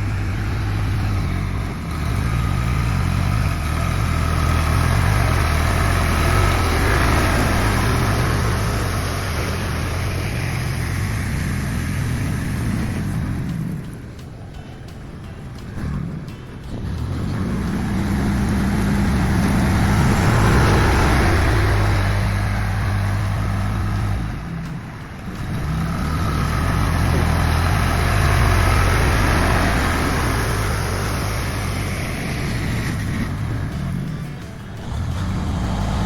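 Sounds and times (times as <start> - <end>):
heavy engine running: 0.0 - 36.0.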